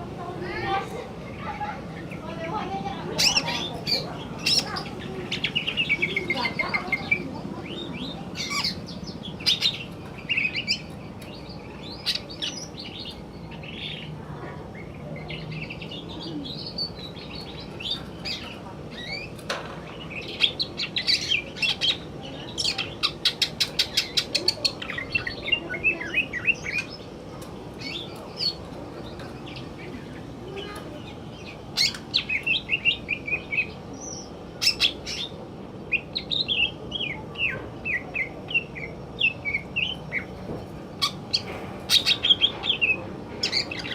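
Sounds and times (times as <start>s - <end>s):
bird singing: 1.4s - 43.9s.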